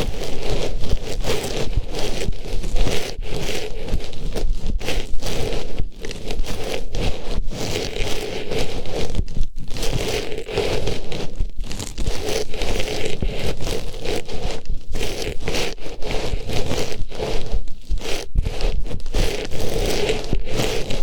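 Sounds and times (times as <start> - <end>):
artificial flower rustling on microphone: 0.0 - 21.0.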